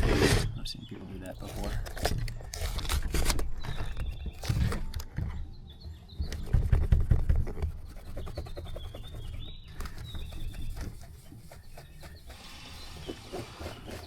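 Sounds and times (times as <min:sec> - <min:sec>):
hand polishing rubbing strokes: 0:07.8 - 0:14.0.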